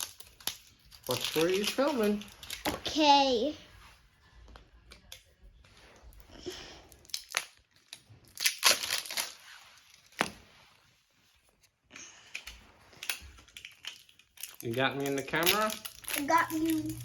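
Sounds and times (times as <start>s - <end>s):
packaging crinkling and tearing: 7.0s - 10.2s, 13.0s - 17.0s.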